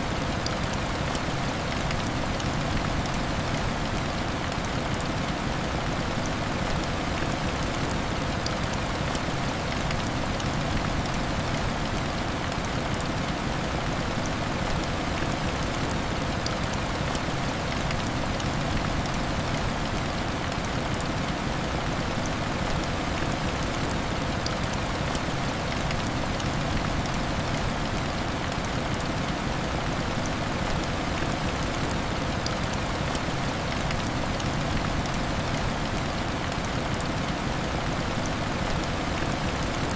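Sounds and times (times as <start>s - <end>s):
heavy rain falling: 0.1s - 39.9s.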